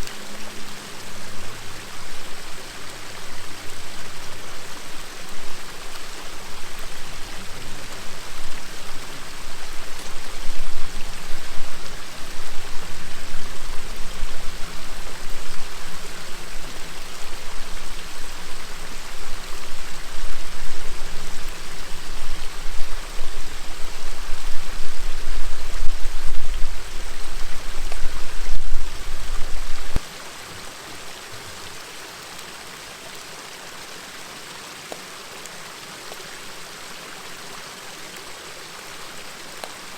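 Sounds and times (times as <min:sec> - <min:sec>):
heavy low rumble: 0:00.0 - 0:30.0
river water flowing: 0:00.0 - 0:39.9.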